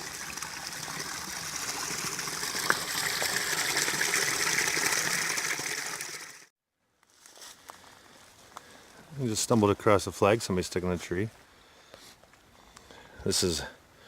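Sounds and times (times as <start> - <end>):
stream water rushing: 0.0 - 6.5.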